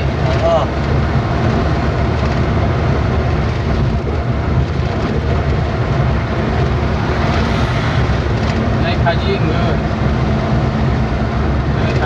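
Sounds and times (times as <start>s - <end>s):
vehicle engine and tyre rumble: 0.0s - 12.0s.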